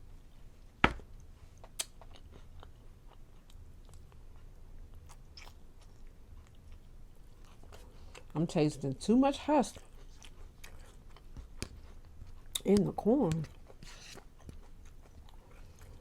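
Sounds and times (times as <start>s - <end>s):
chewing corn kernels: 9.5s - 16.0s.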